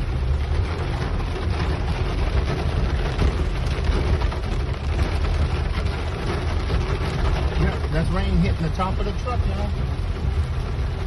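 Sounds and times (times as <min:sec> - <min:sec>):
heavy rain on truck roof: 0:00.0 - 0:11.0
truck driving rumble: 0:00.0 - 0:11.0.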